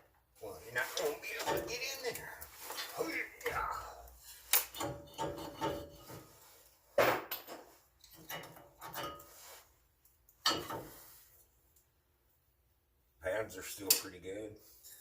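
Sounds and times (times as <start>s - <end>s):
metal scraping: 4.2s - 6.7s.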